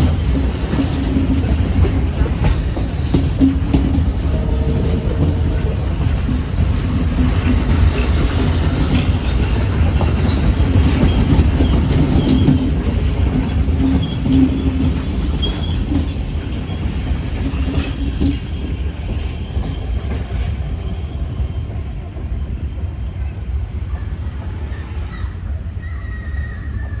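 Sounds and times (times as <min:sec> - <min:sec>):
rail clatter: 0:00.0 - 0:25.0
train engine and wheels rumbling: 0:00.0 - 0:27.0.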